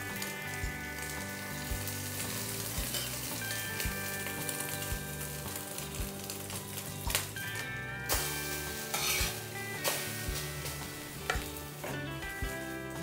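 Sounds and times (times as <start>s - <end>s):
background music with soft beat: 0.0s - 13.0s
bread frying in oil: 0.0s - 13.0s.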